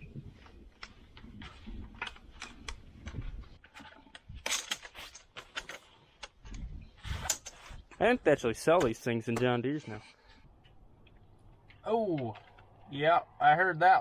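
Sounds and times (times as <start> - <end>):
hose wraps clicking and rustling: 0.4 - 8.1.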